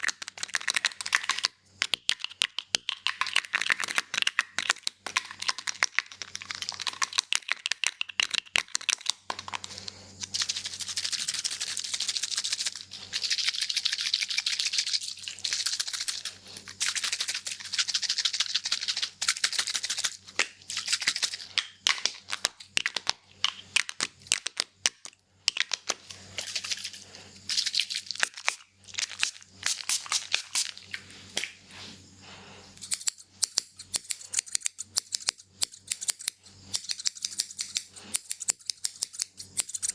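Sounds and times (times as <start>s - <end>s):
scissors snipping: 32.8s - 39.9s.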